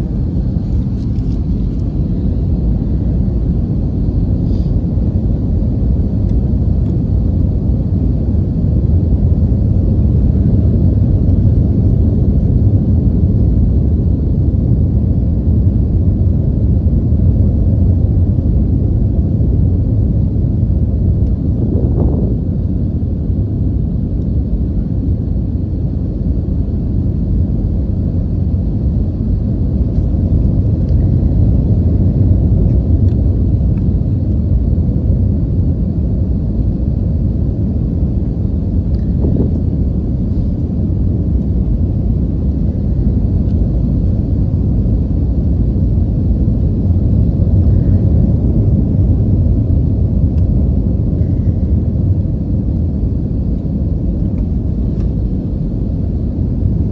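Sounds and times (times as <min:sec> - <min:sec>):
airliner cabin engine rumble: 0:00.0 - 0:56.9.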